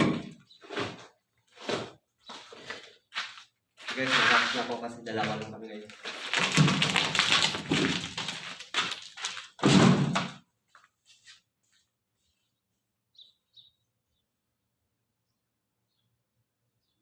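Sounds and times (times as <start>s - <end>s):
loud clattering and knocking: 6.3s - 10.4s
faint bird chirps: 12.3s - 17.0s.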